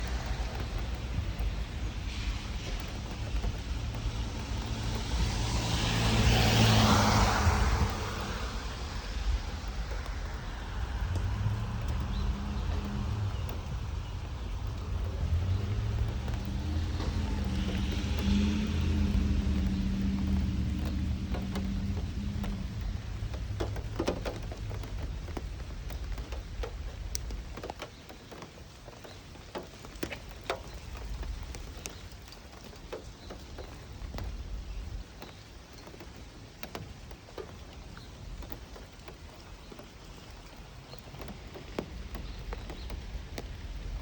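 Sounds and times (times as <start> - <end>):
light taps and ticks: 0.0 - 44.0
low rumble: 7.8 - 27.2.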